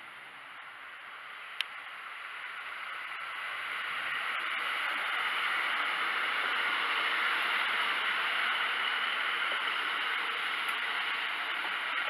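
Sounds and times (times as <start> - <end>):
train wheel and engine rush: 0.0 - 12.0.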